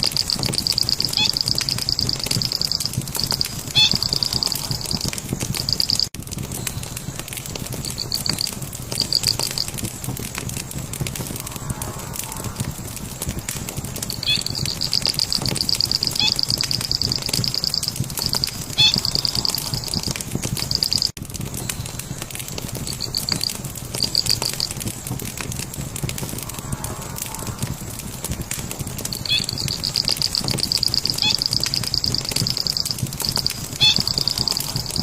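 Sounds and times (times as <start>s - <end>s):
high pulsed trill: 0.0s - 6.1s, 14.1s - 21.1s, 29.0s - 35.0s
low rumble: 0.0s - 21.1s, 22.8s - 35.0s
fire crackling and popping: 0.0s - 35.0s.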